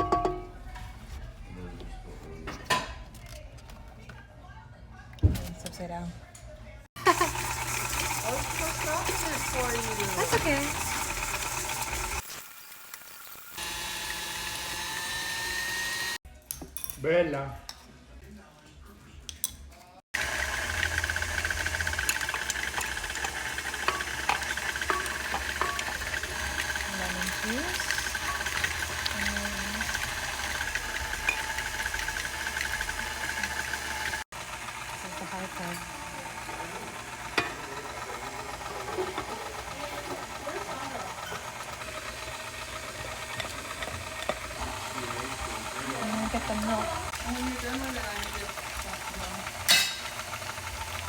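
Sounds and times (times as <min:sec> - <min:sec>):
electric mixer motor whirring: 0:07.0 - 0:12.2, 0:13.5 - 0:16.2, 0:20.2 - 0:51.0.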